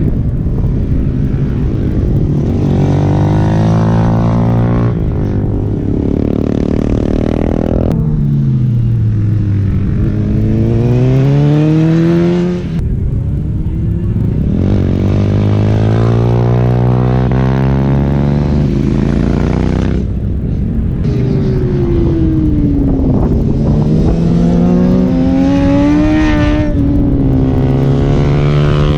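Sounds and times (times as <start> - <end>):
motorcycle engine revving hard: 21.0 - 28.9.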